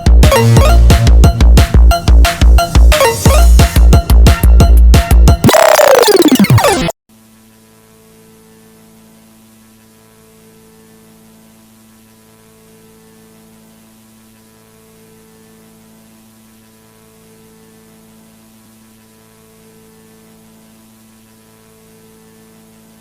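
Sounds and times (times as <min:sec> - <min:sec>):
static hiss: 0:07.1 - 0:23.0.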